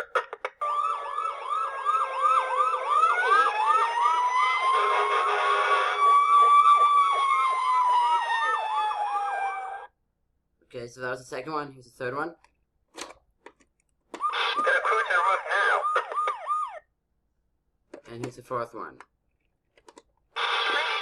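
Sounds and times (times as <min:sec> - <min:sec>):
toy electronic siren: 0:00.6 - 0:09.9, 0:14.2 - 0:16.8, 0:20.4 - 0:21.0.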